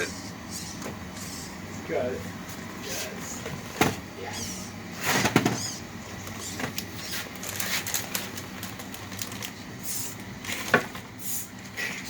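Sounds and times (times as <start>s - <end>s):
rc car clicks and crackles: 6.2s - 9.6s.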